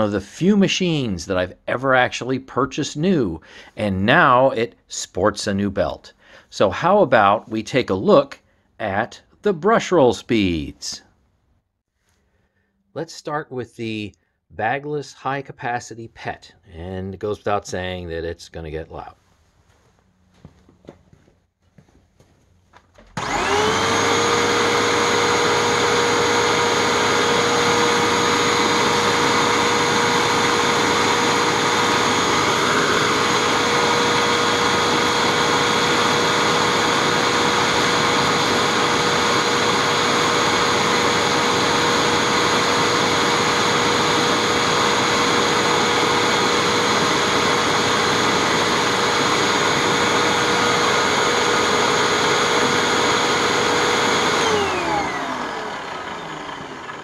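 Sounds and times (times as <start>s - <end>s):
vacuum cleaner motor whine: 23.0s - 57.0s.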